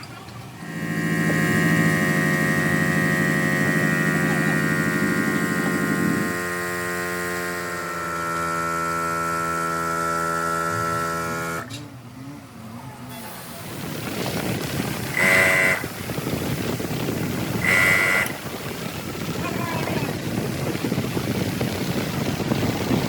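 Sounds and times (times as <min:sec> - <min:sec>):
machine hum with high whine: 0:00.0 - 0:23.0.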